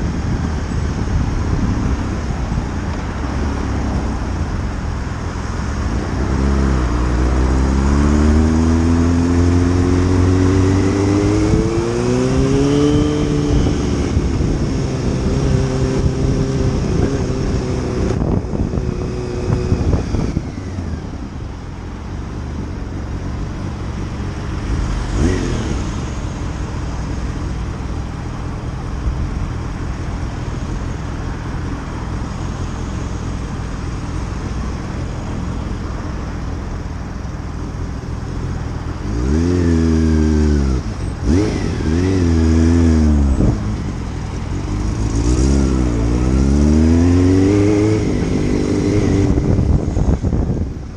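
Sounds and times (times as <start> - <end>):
road and wind noise: 0.0 - 50.9
motorcycle engine accelerating: 5.8 - 21.5, 23.4 - 27.5, 38.9 - 50.9.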